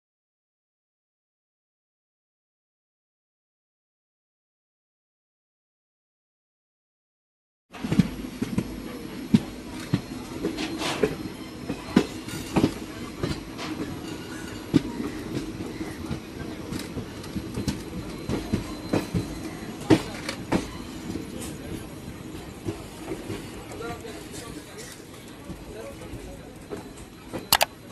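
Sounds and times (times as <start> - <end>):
rumble of train wheels on rail: 7.8 - 27.9.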